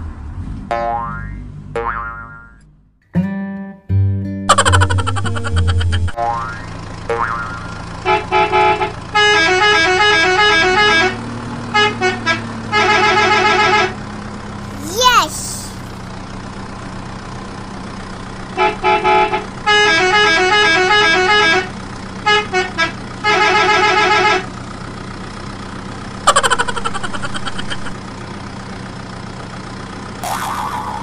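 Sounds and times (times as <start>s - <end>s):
cartoon vehicle horn toots: 22.3s - 24.5s.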